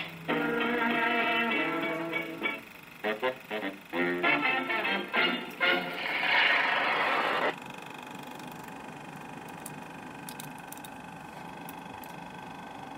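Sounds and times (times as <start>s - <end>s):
film projector humming: 0.0s - 12.9s
sustained music chord: 0.3s - 6.0s.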